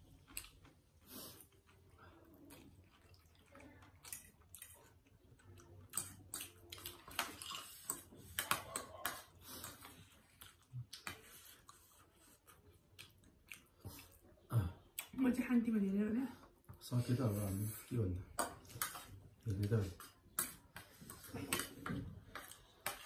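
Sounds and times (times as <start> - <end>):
chewing noodles: 0.0 - 15.1.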